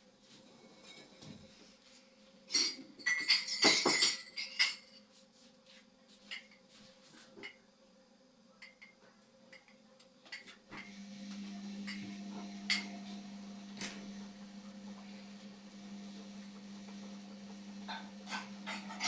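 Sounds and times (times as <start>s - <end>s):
washing machine motor humming: 10.8s - 19.0s
washing machine clicks: 11.8s - 19.0s.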